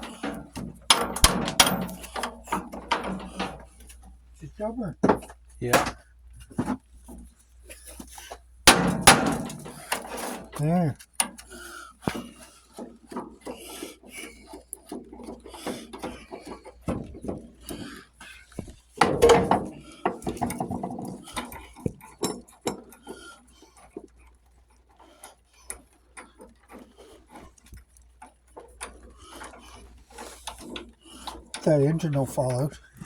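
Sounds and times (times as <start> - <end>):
loud metal clank: 0.0 - 3.8, 8.7 - 10.6
hand tools clicking and scraping: 0.0 - 33.0.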